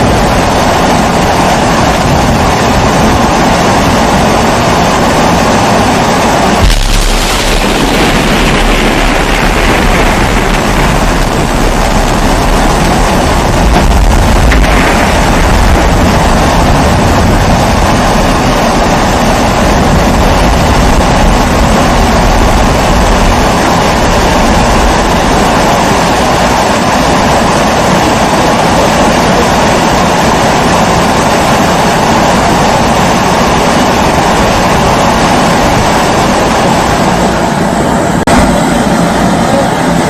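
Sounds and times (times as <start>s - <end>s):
stove burning with rushing noise: 0.0s - 40.0s.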